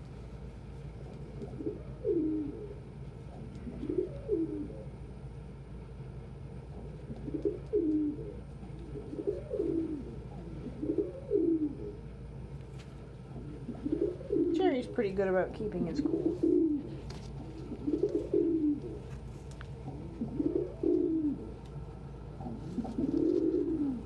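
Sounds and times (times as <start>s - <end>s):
steady low hum: 0.0s - 24.0s
pigeons cooing: 0.8s - 5.2s, 6.6s - 15.0s, 15.9s - 24.0s.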